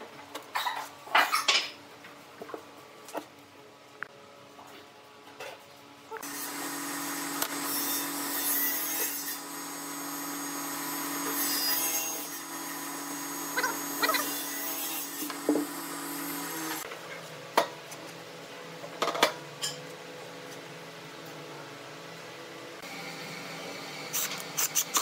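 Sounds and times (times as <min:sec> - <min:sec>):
tool hissing against spinning wood: 0:06.2 - 0:16.8
wood lathe humming: 0:06.2 - 0:16.8.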